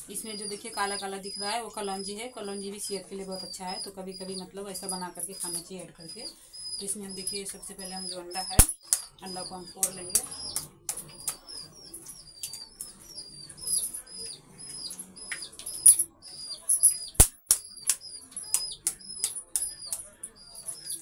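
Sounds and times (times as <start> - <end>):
small bird chirping: 0.0 - 21.0
eggs cracking into a bowl: 9.8 - 11.8, 16.9 - 20.9.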